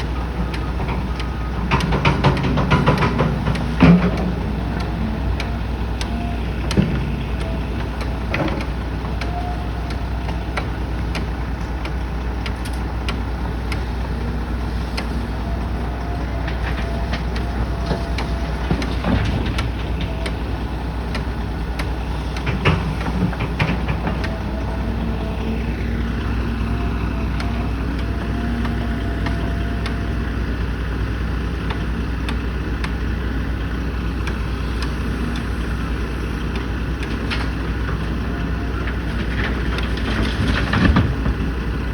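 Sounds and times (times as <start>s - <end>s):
engines rumbling: 0.0s - 41.9s
sharp knocks and clanks: 0.2s - 29.7s.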